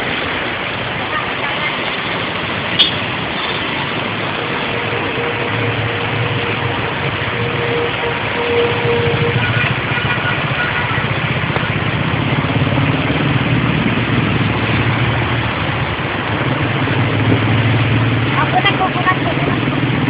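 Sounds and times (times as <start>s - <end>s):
vehicle engine running: 4.0s - 20.0s.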